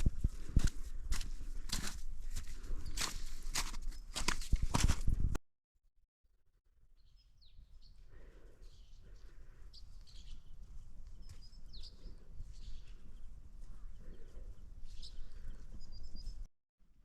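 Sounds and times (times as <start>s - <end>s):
faint bird chirps: 7.0s - 16.5s.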